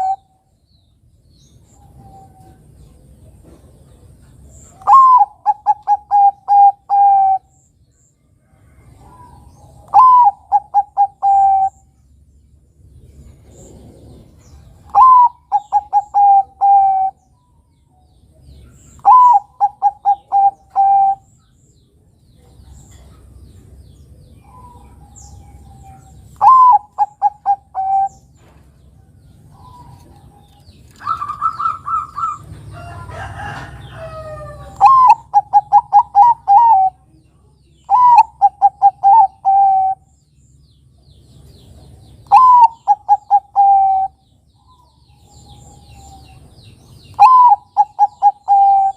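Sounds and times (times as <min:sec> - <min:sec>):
dove cooing: 0:00.0 - 0:00.3, 0:04.7 - 0:07.6, 0:08.9 - 0:11.8, 0:13.5 - 0:17.2, 0:18.8 - 0:21.3, 0:24.4 - 0:28.5, 0:29.5 - 0:37.1, 0:37.9 - 0:40.1, 0:42.3 - 0:46.3, 0:47.1 - 0:48.9.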